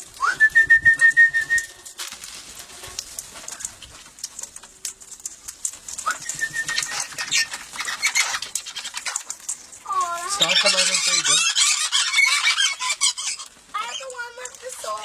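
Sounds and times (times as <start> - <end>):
small clicks and rustling: 0.0 - 15.0
parrot calls: 6.1 - 9.3, 9.9 - 14.1.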